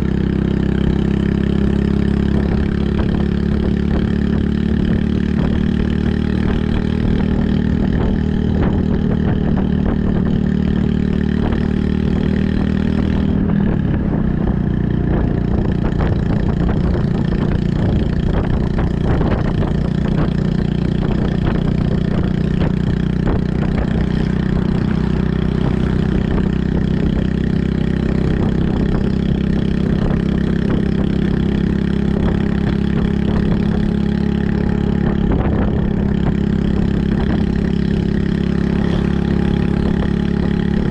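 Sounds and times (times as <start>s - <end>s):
small motorcycle engine running: 0.0s - 40.9s.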